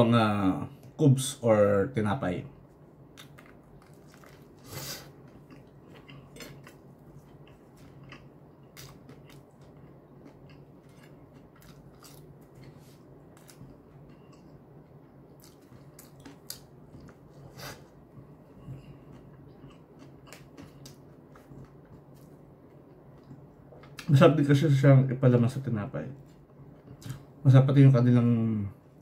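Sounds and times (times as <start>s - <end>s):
steady low hum: 0.0s - 29.0s
faint chewing: 3.1s - 24.1s.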